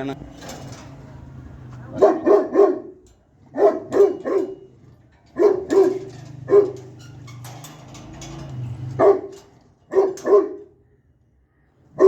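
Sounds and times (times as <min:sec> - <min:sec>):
dog barking: 0:01.9 - 0:04.7, 0:05.3 - 0:07.0, 0:08.9 - 0:10.7.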